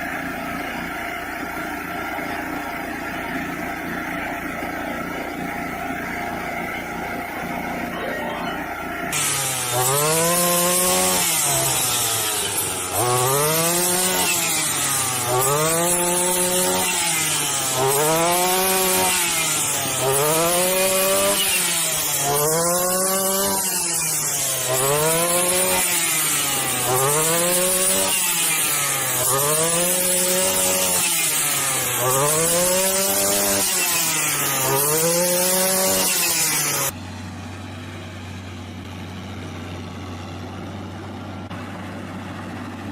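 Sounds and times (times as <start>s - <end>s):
harsh rasping sawing noise: 0.0s - 37.0s
machine drone rising and falling: 7.6s - 16.7s.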